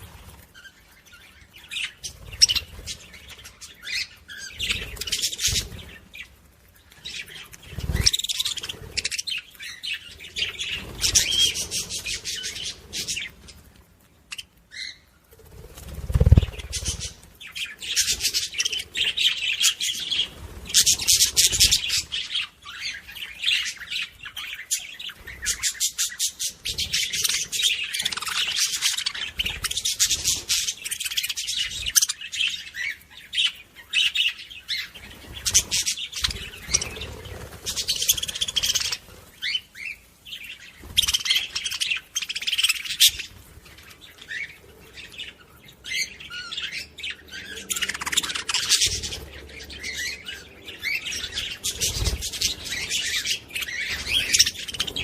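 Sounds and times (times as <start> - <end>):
budgerigars chattering: 16.1 - 40.0, 45.9 - 55.0.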